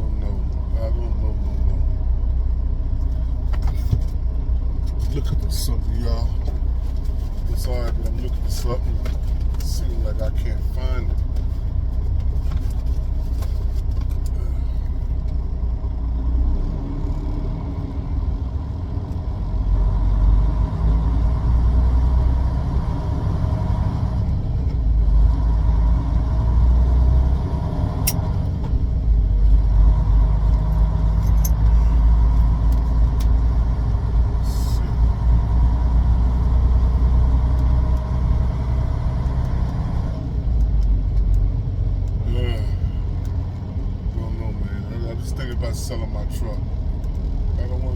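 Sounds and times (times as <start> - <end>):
vehicle engine and road rumble: 0.0 - 47.9.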